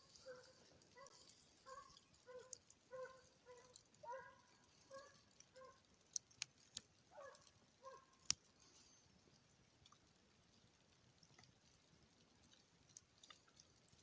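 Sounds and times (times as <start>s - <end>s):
distant hound baying: 0.1s - 5.8s, 7.1s - 8.1s.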